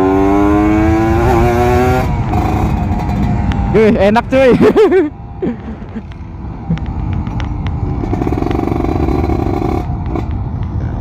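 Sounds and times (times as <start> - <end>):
two-stroke motorcycle engine running: 2.0 - 4.1, 6.6 - 10.3.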